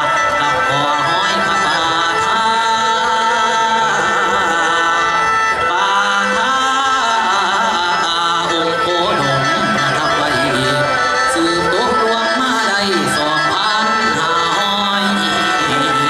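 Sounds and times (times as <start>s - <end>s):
folk band playing: 0.0s - 16.0s
person singing: 0.0s - 16.0s.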